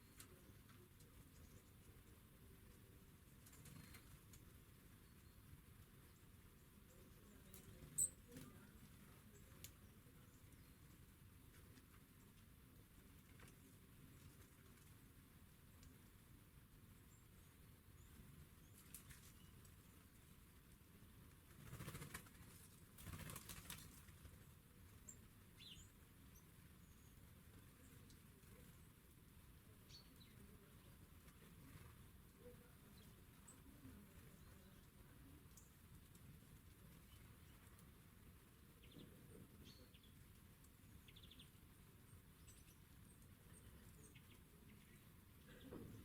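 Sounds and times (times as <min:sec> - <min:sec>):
small bird chirps and trills: 0:00.0 - 0:15.1, 0:17.0 - 0:20.5, 0:21.5 - 0:46.0
bird wingbeats: 0:21.4 - 0:24.5.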